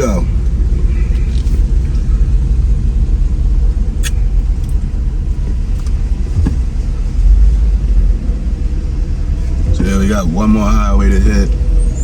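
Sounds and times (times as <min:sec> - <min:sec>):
car engine and road rumble: 0:00.0 - 0:12.0
sharp click: 0:04.0 - 0:04.8.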